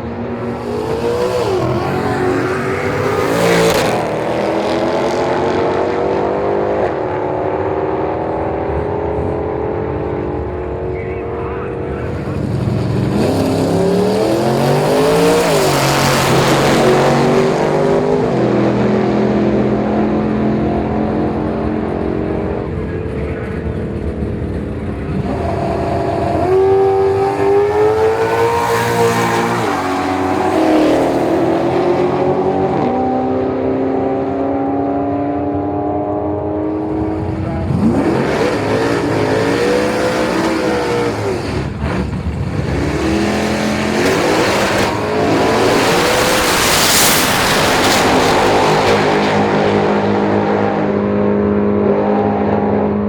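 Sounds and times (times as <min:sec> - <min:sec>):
drag racing cars accelerating: 0:00.0 - 0:53.0
car passing by: 0:44.0 - 0:50.0.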